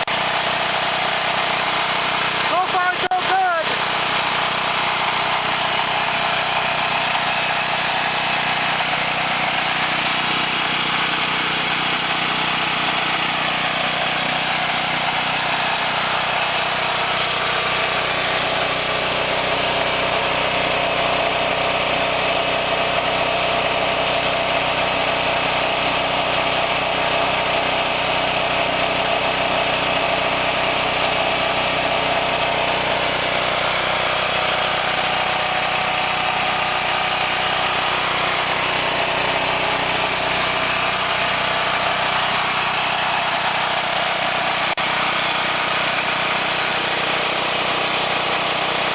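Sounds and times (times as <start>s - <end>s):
generator engine running: 0.0s - 48.9s.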